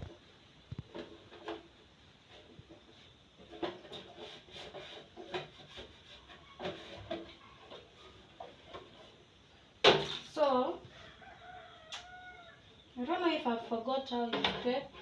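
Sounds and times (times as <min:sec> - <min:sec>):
objects handled and wiped: 0:00.0 - 0:09.5.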